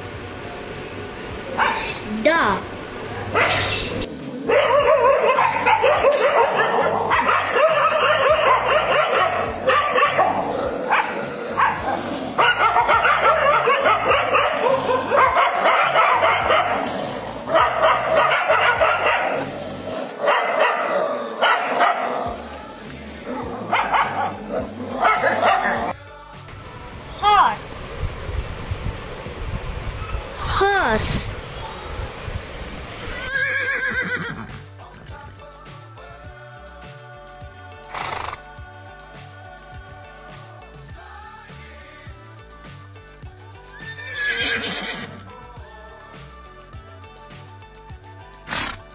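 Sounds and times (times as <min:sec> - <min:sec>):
dog barking and yipping: 0:01.6 - 0:02.2, 0:03.2 - 0:22.3, 0:23.4 - 0:26.0.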